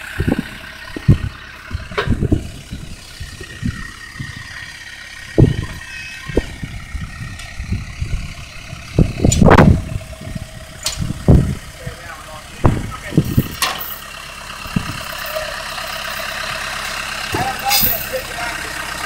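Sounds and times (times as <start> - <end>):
vehicle engine running: 0.0 - 19.0
low knocks and clunks: 0.2 - 4.5.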